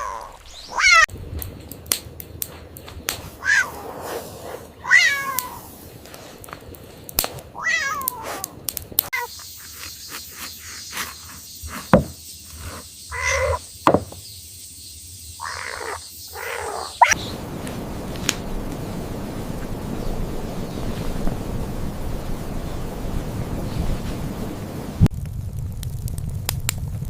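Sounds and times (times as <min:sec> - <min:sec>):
kitten meowing: 0:03.4 - 0:03.7, 0:04.8 - 0:05.6, 0:07.6 - 0:08.3, 0:13.1 - 0:13.6
sharp knocks: 0:11.9 - 0:12.2, 0:13.8 - 0:14.2.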